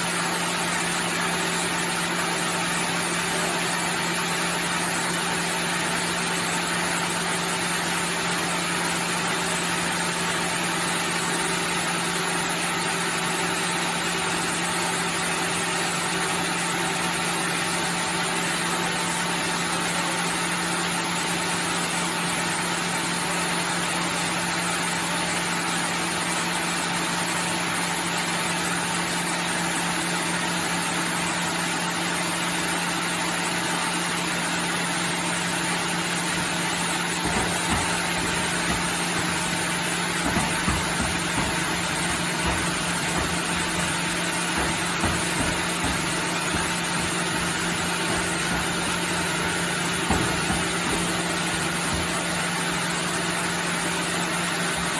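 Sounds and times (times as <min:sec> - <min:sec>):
sawmill machinery humming: 0:00.0 - 0:20.6, 0:32.7 - 0:54.9
low knocks and thuds: 0:36.8 - 0:53.0.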